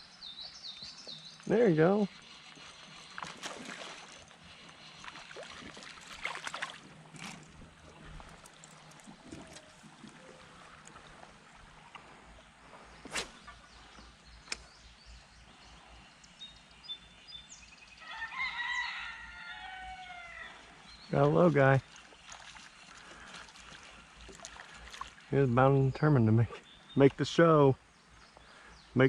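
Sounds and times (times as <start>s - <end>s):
rooster crowing: 18.0s - 20.6s.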